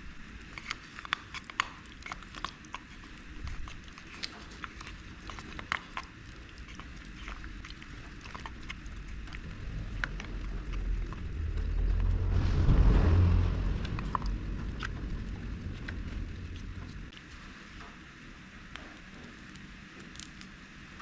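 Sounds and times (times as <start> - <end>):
vehicle passing by: 9.1 - 17.1.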